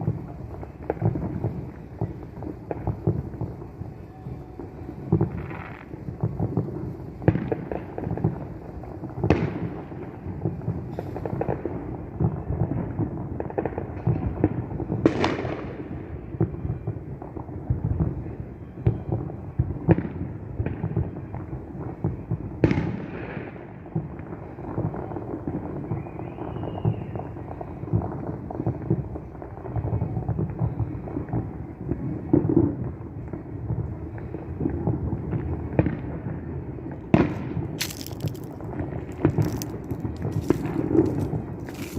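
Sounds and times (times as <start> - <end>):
sharp firework bangs: 0.0 - 16.6, 22.0 - 25.0, 34.2 - 41.9
fireworks popping and booming: 0.0 - 41.9.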